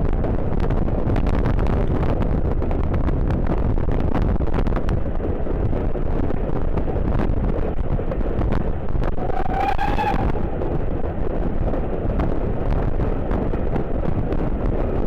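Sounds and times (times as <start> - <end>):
low rumble: 0.0 - 15.0
wind buffeting microphone: 0.0 - 15.0
short pitched tone: 9.2 - 10.6.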